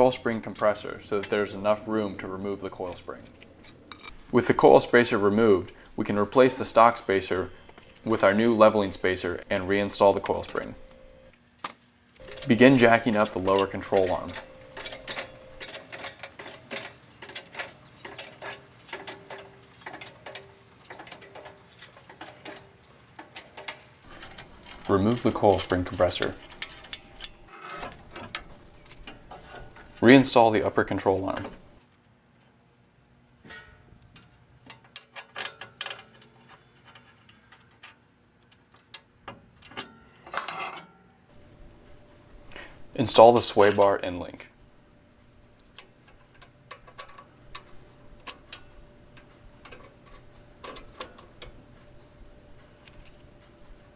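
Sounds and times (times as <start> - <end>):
metal clatter: 2.9 - 4.4, 12.2 - 30.1
metallic clinks of hand tools: 3.6 - 4.3, 12.2 - 20.4, 24.1 - 29.0
jack handle metallic clicks: 24.1 - 30.0.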